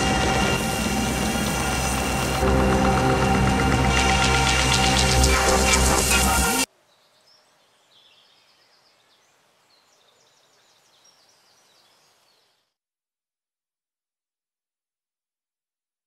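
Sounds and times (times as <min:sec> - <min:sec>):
loud electronic music: 0:00.0 - 0:06.7
faint birdsong: 0:06.7 - 0:12.8.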